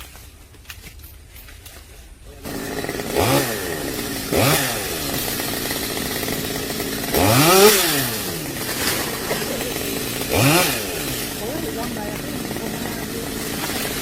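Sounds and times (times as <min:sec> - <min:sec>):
chainsaw engine revving: 0:02.4 - 0:14.0.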